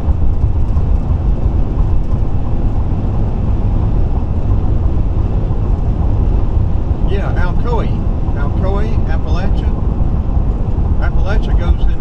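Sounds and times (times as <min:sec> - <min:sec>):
car road noise at highway speed: 0:00.0 - 0:12.0.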